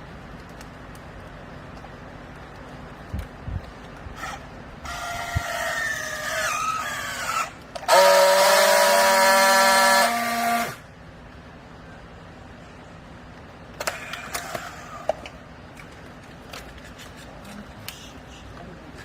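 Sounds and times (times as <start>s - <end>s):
hydraulic pump motor whining: 4.2s - 10.8s.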